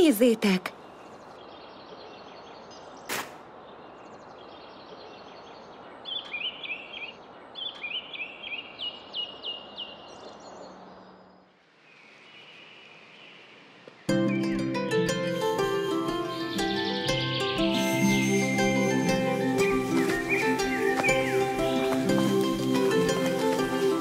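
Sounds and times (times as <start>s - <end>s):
bird chirping: 0.0s - 24.0s
steady outdoor hiss: 0.0s - 24.0s
sharp snap: 3.1s - 3.4s.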